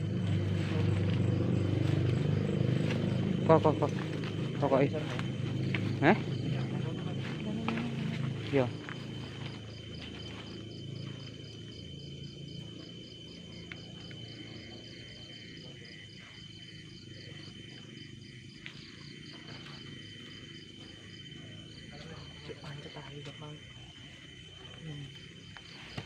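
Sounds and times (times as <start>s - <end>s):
low steady rumble: 0.0s - 13.4s
crickets chirping: 0.0s - 26.0s
high insect tone: 0.0s - 26.0s.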